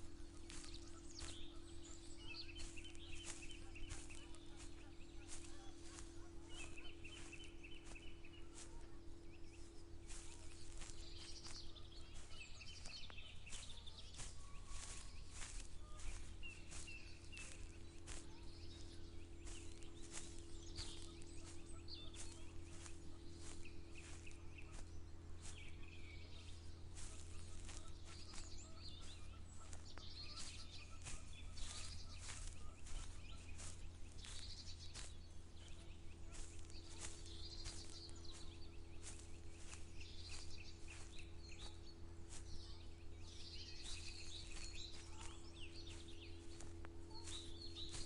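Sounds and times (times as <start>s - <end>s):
footsteps through a field: 0.0s - 48.0s
small birds chirping: 0.0s - 48.0s
steady low hum: 0.0s - 48.0s.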